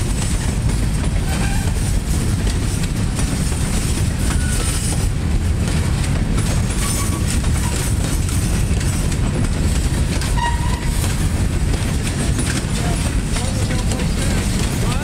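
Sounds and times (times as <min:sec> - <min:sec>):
train wheels rumbling on rail: 0:00.0 - 0:15.0
wheels clicking over rail joints: 0:00.0 - 0:15.0.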